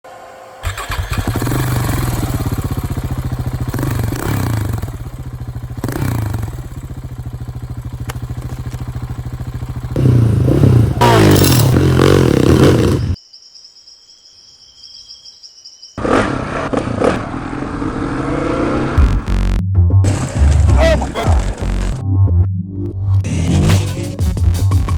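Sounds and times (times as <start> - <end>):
motorcycle engine running: 0.6 - 13.2.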